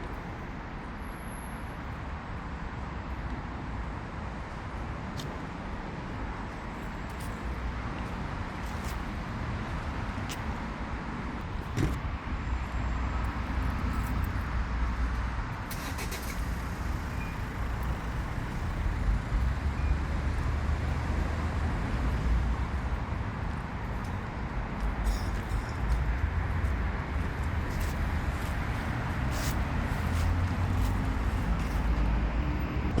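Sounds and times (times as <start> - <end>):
vehicle low rumble: 11.2 - 33.0.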